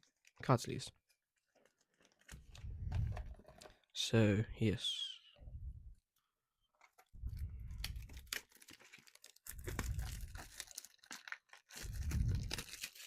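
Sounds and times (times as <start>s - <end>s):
packaging tearing and crinkling: 7.3s - 13.0s.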